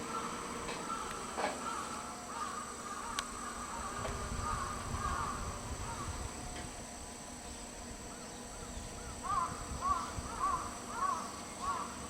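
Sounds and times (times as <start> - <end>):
crow cawing: 0.0 - 6.2, 9.0 - 12.0.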